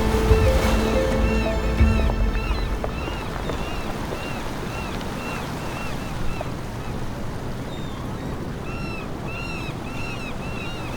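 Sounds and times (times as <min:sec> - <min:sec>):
surf washing against shore: 0:00.0 - 0:07.6.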